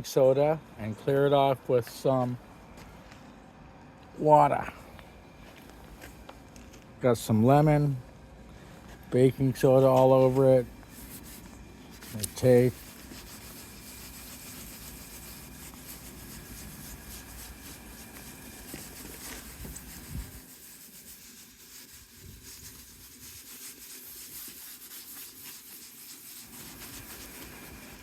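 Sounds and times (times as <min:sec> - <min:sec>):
lemon rubbing on plastic: 0:09.5 - 0:28.0.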